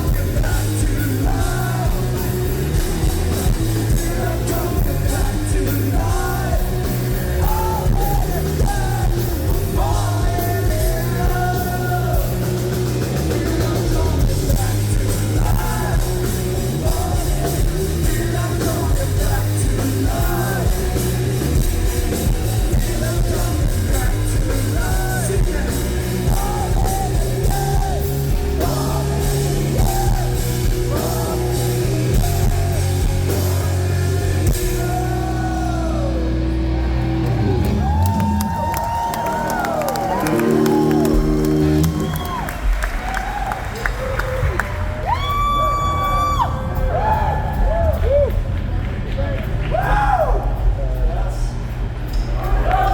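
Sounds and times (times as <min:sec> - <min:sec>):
person singing: 0:00.0 - 0:36.5
bass guitar: 0:00.0 - 0:52.9
drum kit: 0:00.0 - 0:52.9
heavy electric guitars: 0:00.0 - 0:52.9.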